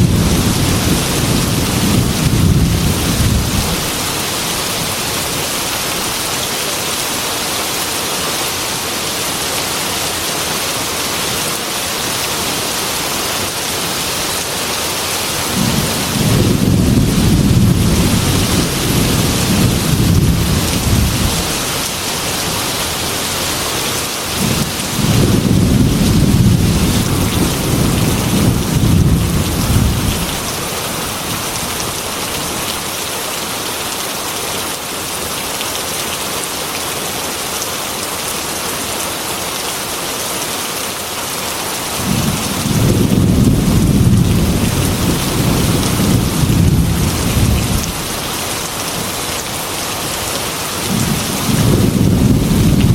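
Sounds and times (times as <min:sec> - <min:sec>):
thunder rumbling: 0:00.0 - 0:04.3, 0:15.5 - 0:23.3, 0:24.4 - 0:30.5, 0:42.0 - 0:48.2, 0:50.8 - 0:52.9
heavy rain on a window: 0:00.0 - 0:52.9.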